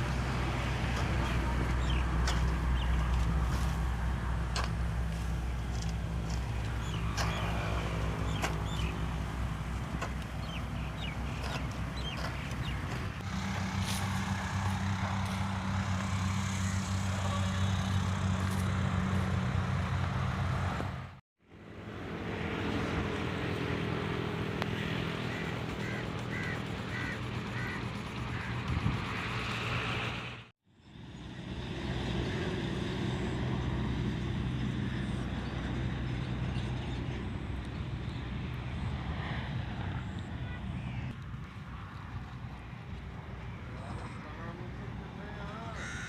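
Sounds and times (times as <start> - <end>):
small farm machine engine running: 4.2 - 20.4.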